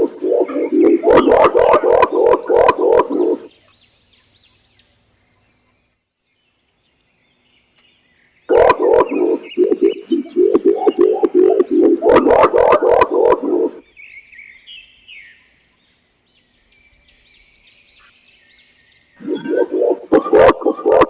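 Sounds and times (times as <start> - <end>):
pigeons hooting: 0.0 - 3.5, 8.5 - 13.8, 19.2 - 21.0
faint high chirps: 19.2 - 21.0.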